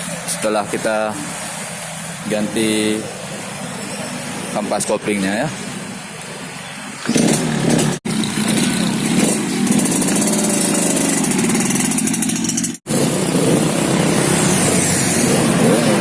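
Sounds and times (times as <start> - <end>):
two-stroke engine revving: 7.0 - 16.0.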